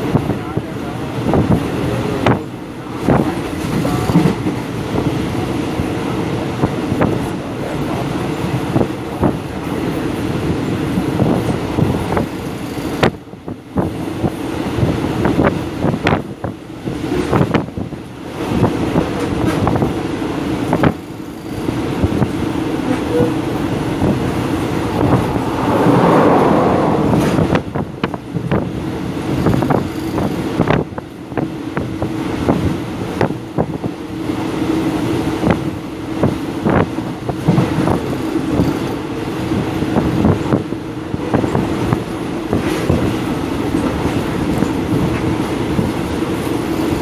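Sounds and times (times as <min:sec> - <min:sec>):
train coach rumble and rattle: 0:00.0 - 0:47.0
held hum: 0:22.9 - 0:28.4.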